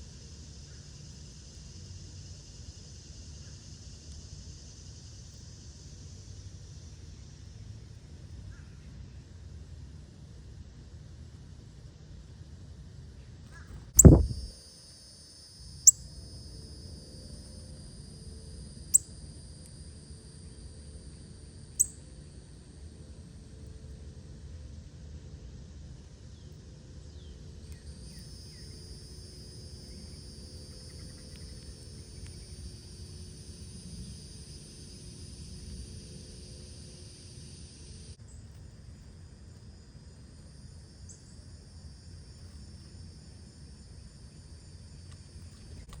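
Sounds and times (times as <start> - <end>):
insect drone: 0.0 - 46.0
bird chirps: 14.0 - 14.5
low rumble: 14.0 - 14.5.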